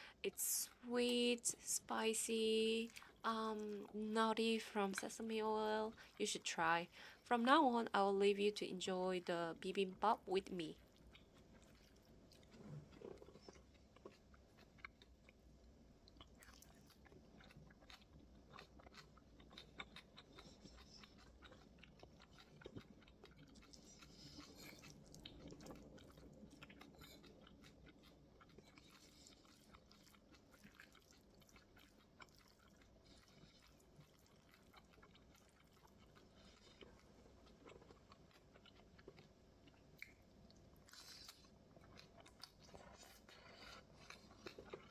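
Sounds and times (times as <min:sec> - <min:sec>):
person chewing food: 0:10.6 - 0:44.9.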